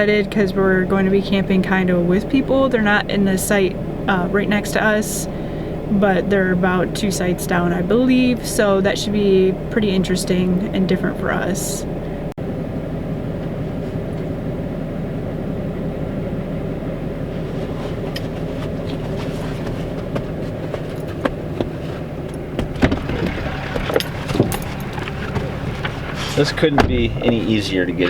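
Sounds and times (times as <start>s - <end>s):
diesel engine running: 0.0s - 28.0s
clicks and rattles: 22.3s - 27.5s.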